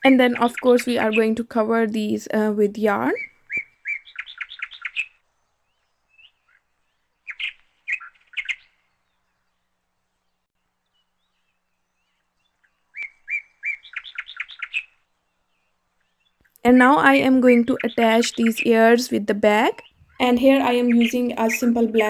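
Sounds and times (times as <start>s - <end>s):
bird chirping: 2.8s - 6.6s, 11.2s - 15.0s, 16.1s - 22.0s.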